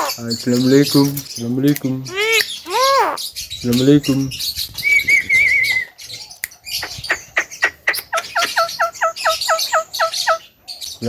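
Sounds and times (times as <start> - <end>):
myna calling: 0.0 - 1.0, 2.0 - 3.5, 6.7 - 10.6
high chirping: 0.0 - 11.0.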